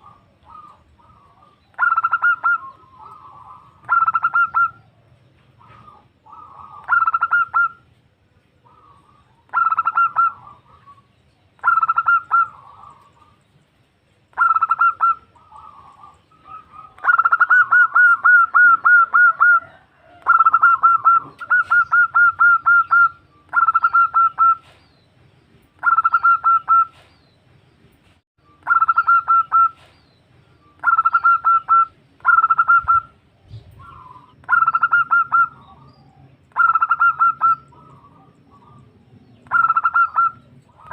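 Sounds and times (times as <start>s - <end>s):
dove cooing: 0.0s - 7.9s, 8.6s - 13.4s, 14.3s - 24.8s, 25.8s - 27.1s, 28.6s - 29.9s, 30.8s - 40.9s.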